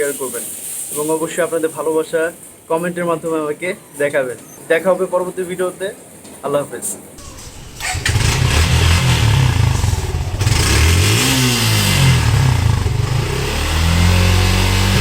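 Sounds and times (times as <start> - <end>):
motorcycle engine revving and idling: 7.2 - 15.0.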